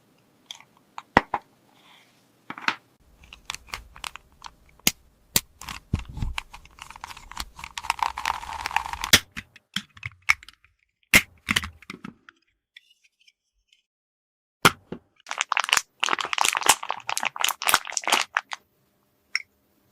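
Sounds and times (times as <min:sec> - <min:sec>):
scratchy toy handling: 0:03.0 - 0:10.6.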